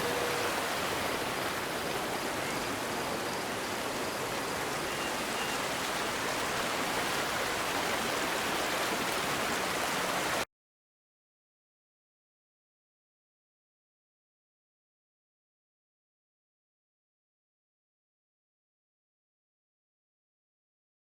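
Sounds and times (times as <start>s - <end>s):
river water rushing over stones: 0.0s - 10.4s.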